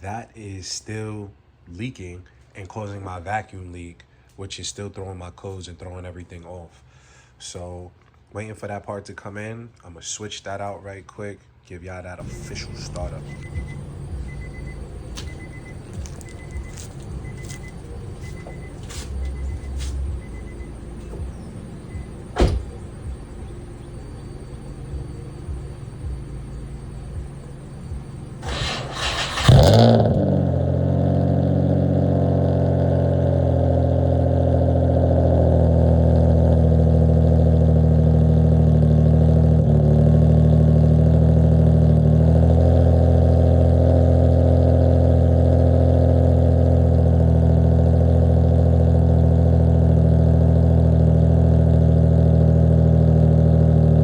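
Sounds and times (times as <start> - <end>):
car engine cranking and idling: 12.2 - 54.0.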